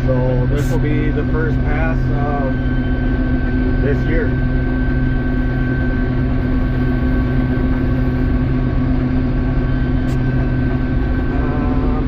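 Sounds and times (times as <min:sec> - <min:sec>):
combine harvester running: 0:00.0 - 0:12.0
high whine: 0:00.0 - 0:12.0.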